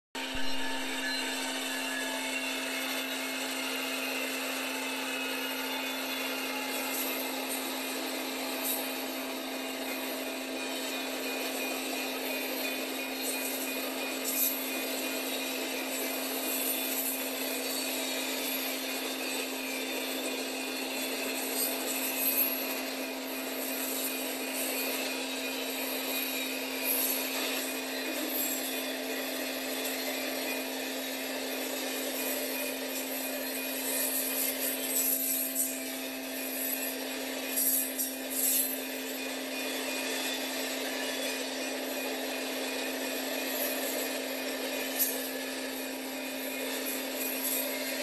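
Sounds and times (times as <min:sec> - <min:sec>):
thin wheel squealing: 0:09.9 - 0:18.7, 0:21.0 - 0:48.0.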